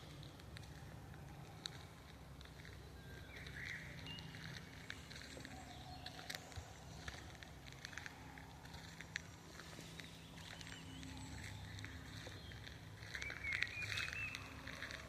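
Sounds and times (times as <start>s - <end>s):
footsteps crunching on leaves: 0.0s - 15.0s
faint bird chirps: 9.6s - 15.0s.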